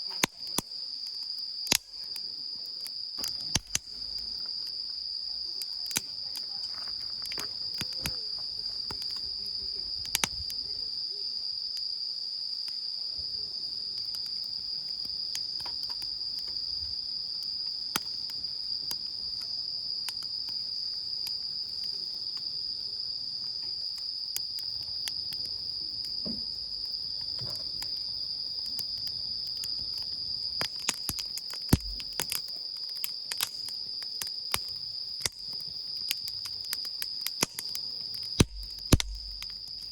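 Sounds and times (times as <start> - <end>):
crickets trilling: 0.0 - 39.9
small clicks and knocks: 15.6 - 16.6, 30.6 - 32.5, 38.4 - 39.8.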